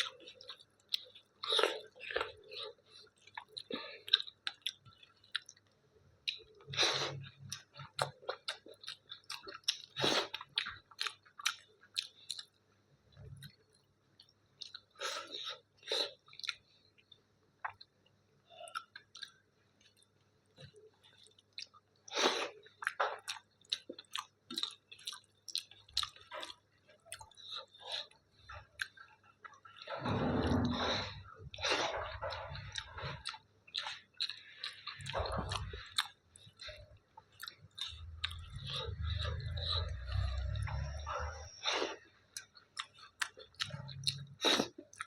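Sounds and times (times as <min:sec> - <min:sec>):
person chewing food: 0:00.0 - 0:45.0.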